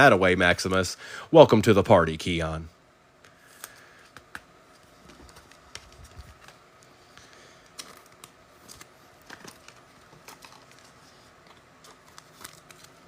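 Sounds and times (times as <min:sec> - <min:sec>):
trading cards clicking and rustling: 0:03.2 - 0:13.0.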